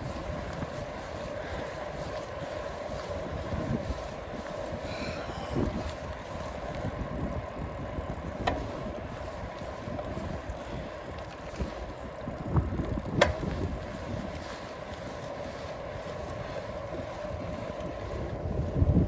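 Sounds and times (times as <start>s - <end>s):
steady hum: 0.0s - 7.4s
wind buffeting microphone: 0.0s - 19.0s.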